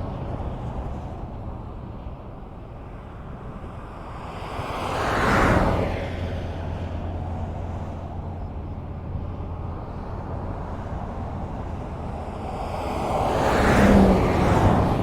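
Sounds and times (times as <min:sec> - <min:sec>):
low traffic rumble: 0:00.0 - 0:15.0
vehicle passing: 0:09.9 - 0:15.0.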